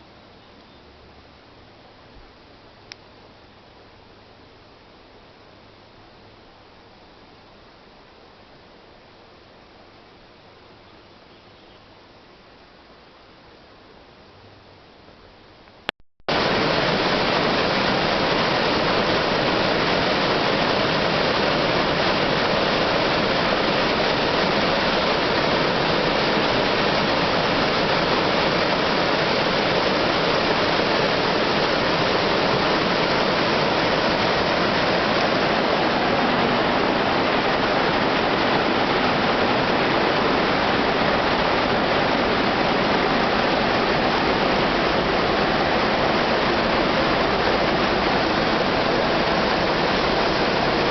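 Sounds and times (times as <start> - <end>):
waterfall rushing: 16.3 - 50.9.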